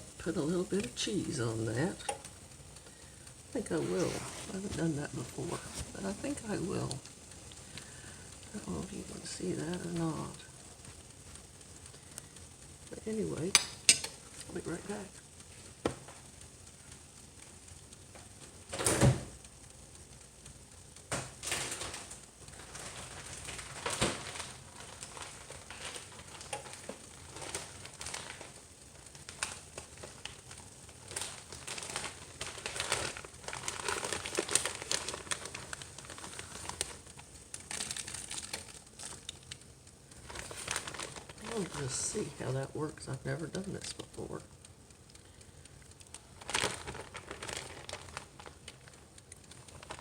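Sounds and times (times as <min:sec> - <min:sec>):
plastic packaging crinkling: 0:00.0 - 0:50.0
small clicks: 0:13.5 - 0:41.8, 0:43.8 - 0:50.0.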